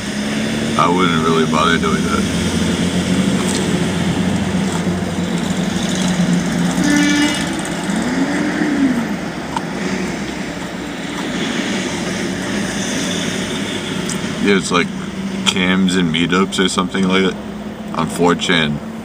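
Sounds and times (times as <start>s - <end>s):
rising and falling tone: 0.0s - 16.0s
car interior road hum: 0.0s - 19.0s.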